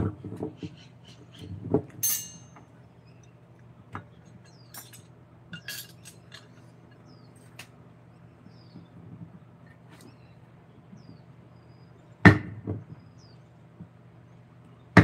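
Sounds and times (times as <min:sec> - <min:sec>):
ringing clink: 0:02.0 - 0:02.6
tools knocking and clinking: 0:02.0 - 0:02.7, 0:03.9 - 0:07.0.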